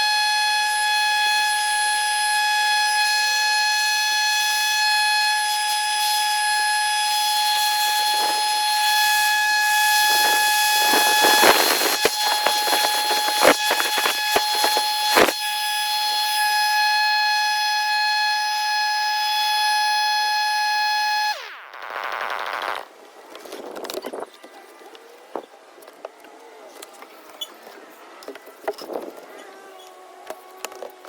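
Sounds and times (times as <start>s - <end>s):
motor high-pitched whine: 0.0s - 22.9s.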